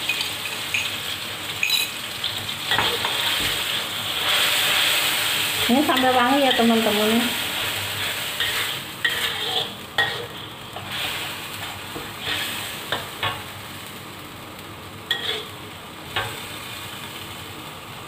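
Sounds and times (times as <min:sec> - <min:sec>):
spice paste sizzling in oil: 0:00.0 - 0:18.0
spatula scraping a wok: 0:00.5 - 0:13.5, 0:15.1 - 0:16.7.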